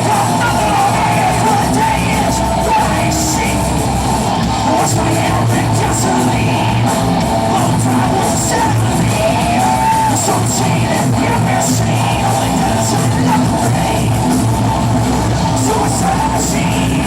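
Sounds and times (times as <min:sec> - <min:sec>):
live rock band with singing: 0:00.0 - 0:17.0.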